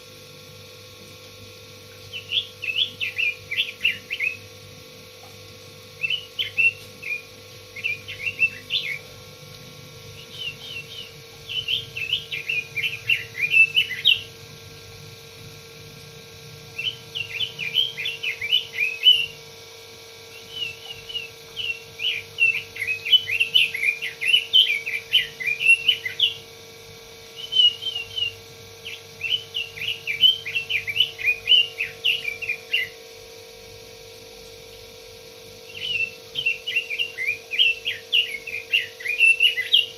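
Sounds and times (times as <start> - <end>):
faint steady hum: 0.0 - 39.9
bird singing warbled phrases: 2.1 - 4.5, 6.0 - 9.1, 10.1 - 14.4, 16.8 - 19.4, 20.3 - 26.5, 27.4 - 33.0, 35.7 - 39.9.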